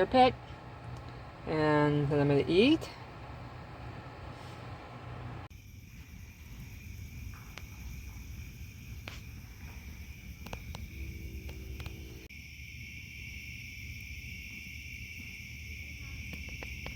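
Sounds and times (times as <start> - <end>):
low rumble: 3.0 - 12.3
crickets trilling: 5.5 - 16.9.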